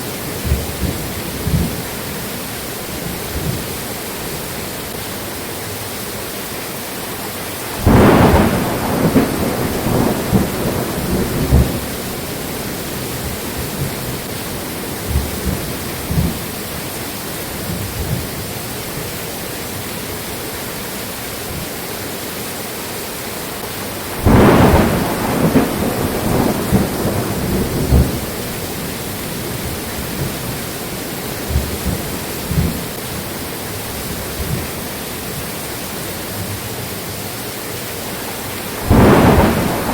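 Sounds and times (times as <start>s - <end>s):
rain hiss: 0.0s - 39.9s
thunder rumbling: 0.1s - 2.2s, 7.7s - 18.6s, 23.6s - 34.8s, 38.2s - 39.9s.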